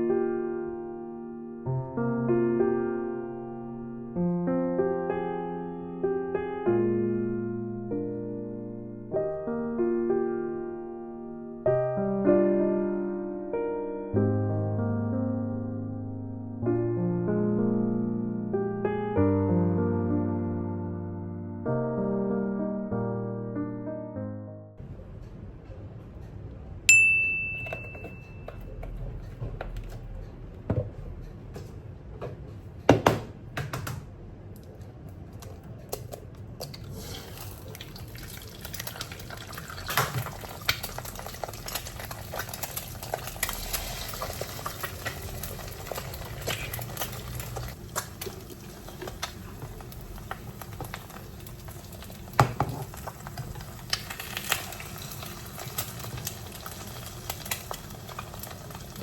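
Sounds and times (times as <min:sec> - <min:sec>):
metallic ding: 0:26.9 - 0:28.6
pots and dishes clinking: 0:26.9 - 0:29.9, 0:52.4 - 0:53.2.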